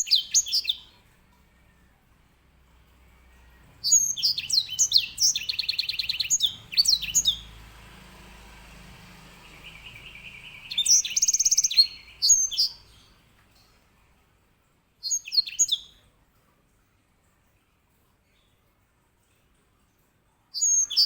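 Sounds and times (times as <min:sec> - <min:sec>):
finch chirps and trills: 0:00.0 - 0:01.0, 0:03.4 - 0:13.2, 0:15.0 - 0:16.0, 0:20.6 - 0:21.0.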